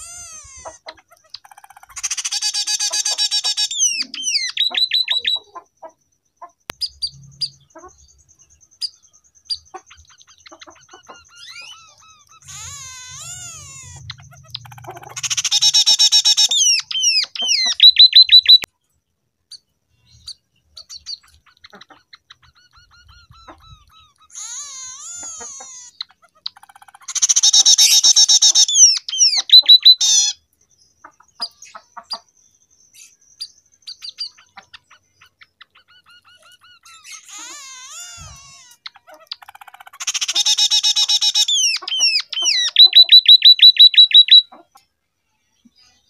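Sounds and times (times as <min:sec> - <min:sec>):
bird chirps: 0:00.0 - 0:46.0
bird singing trilled song: 0:00.0 - 0:46.0.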